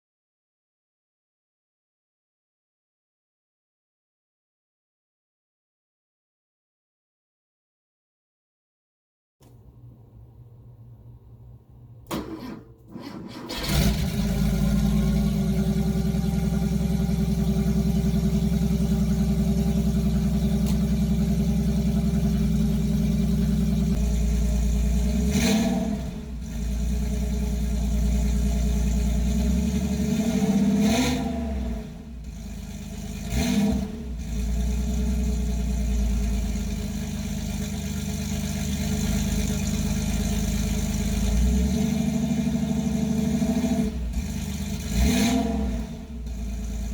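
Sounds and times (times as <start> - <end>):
engine throttle blips: 9.5 - 46.9
car engine idling: 13.1 - 30.8, 31.5 - 45.1, 45.8 - 46.9.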